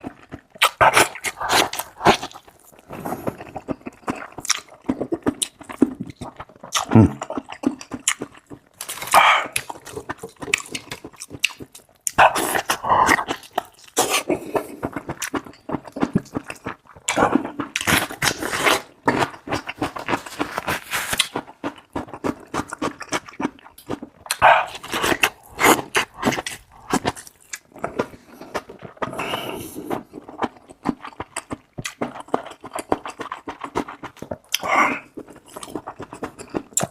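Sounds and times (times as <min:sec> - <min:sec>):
wet chewing: 0:00.0 - 0:36.9.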